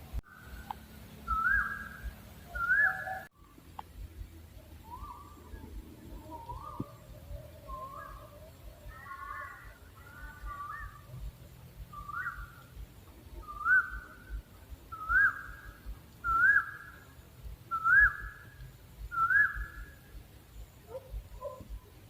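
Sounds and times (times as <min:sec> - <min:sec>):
owl hooting: 0:01.3 - 0:03.3, 0:04.8 - 0:11.2, 0:13.4 - 0:17.1.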